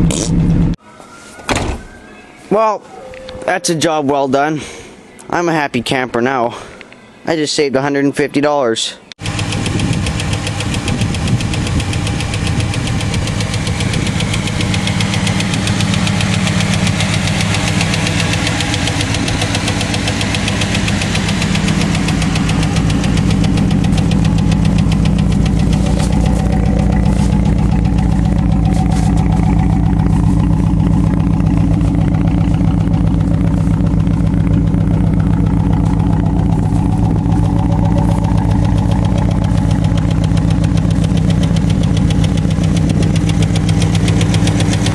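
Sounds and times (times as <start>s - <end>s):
engine running with ticking: 9.2s - 44.9s.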